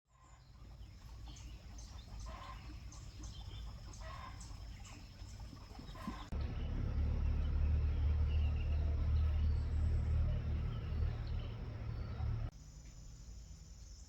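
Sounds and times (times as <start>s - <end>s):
chickens clucking: 0.2s - 6.4s
louder low rumble: 6.3s - 12.5s
low rumble: 6.3s - 12.5s.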